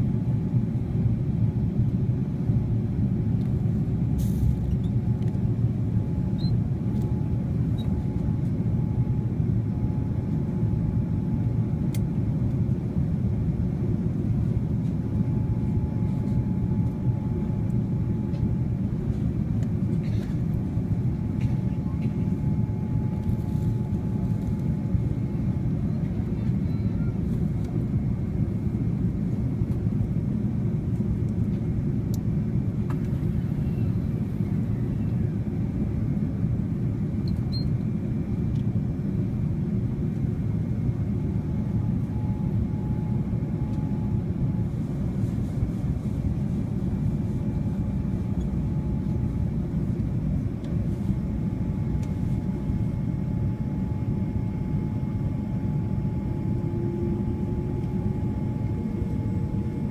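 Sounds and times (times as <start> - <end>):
deep rumble of engines and airflow: 0.0 - 59.9
thin steady whine: 13.3 - 30.8, 39.4 - 59.9
low tone: 55.8 - 59.9.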